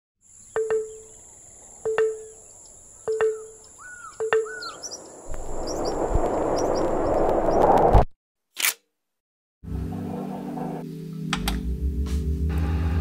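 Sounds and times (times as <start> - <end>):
birds chirping: 0.2 - 7.8
outdoor ambience: 0.2 - 8.1
rush of noise: 5.0 - 8.1.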